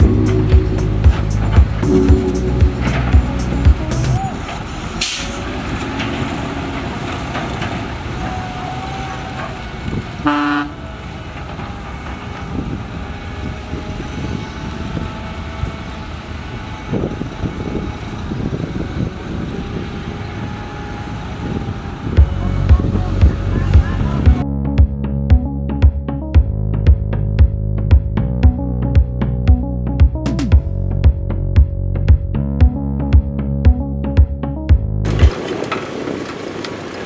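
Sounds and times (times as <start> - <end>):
heavy machinery engines running: 0.0 - 24.4, 35.1 - 37.0
vehicle horn toot: 10.2 - 10.9.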